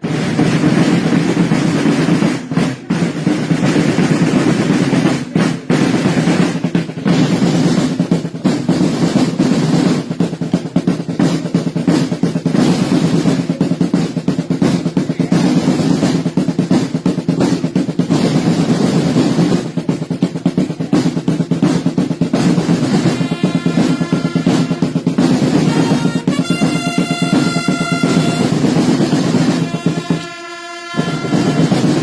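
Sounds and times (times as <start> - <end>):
snare drum rolls: 0.0 - 32.0.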